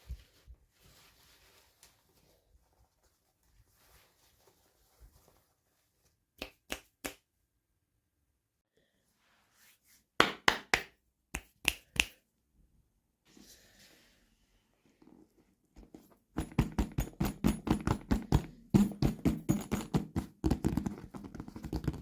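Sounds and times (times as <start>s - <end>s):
faint rustling: 0.0s - 6.2s.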